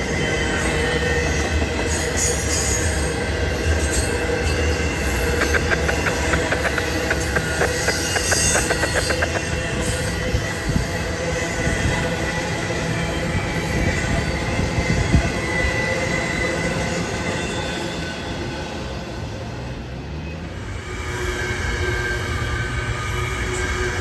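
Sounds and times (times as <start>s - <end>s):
high wheel squealing: 0.0s - 10.8s
train wheels rumbling on rail: 0.0s - 24.0s.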